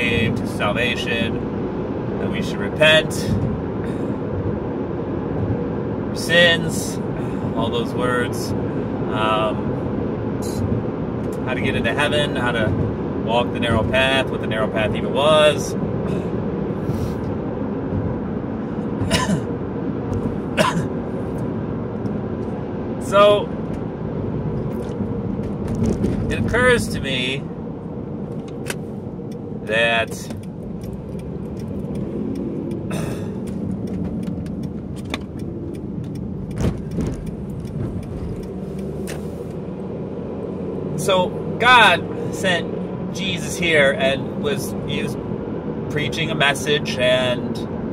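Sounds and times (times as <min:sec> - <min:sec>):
car cabin road rumble: 0:00.0 - 0:47.9
man coughing or clearing throat: 0:19.0 - 0:19.5, 0:20.5 - 0:21.0, 0:32.9 - 0:33.4.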